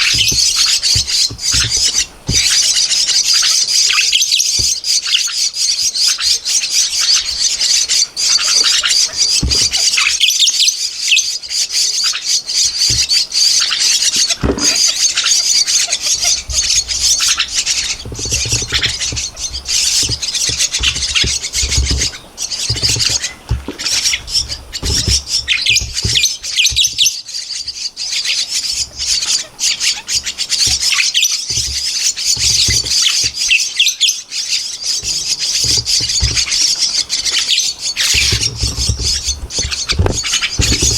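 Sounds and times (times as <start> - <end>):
nestlings calling harshly: 0.0 - 40.9
low bumps and rumbles: 16.1 - 27.0, 35.0 - 40.9.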